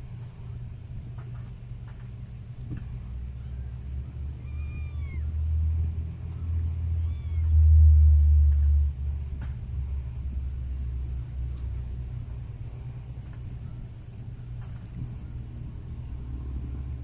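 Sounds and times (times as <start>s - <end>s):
low rumble: 0.0s - 17.0s
kitten mewing: 4.3s - 5.4s, 6.8s - 7.6s.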